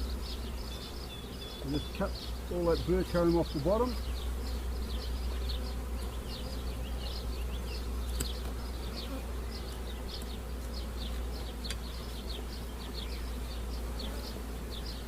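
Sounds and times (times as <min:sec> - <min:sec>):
honey bees humming: 0:00.0 - 0:15.0.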